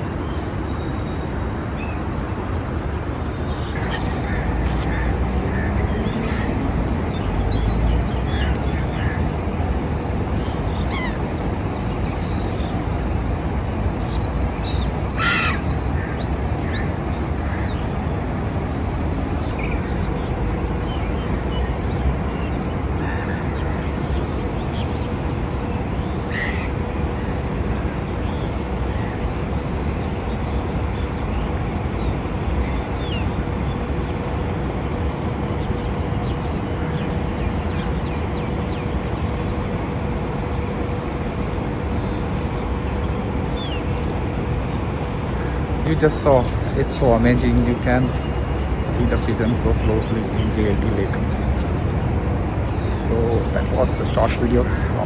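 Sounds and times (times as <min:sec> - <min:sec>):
faint constant hum: 0:00.0 - 0:55.0
gulls calling: 0:03.5 - 0:19.6, 0:22.9 - 0:24.4, 0:25.6 - 0:33.6, 0:41.6 - 0:55.0.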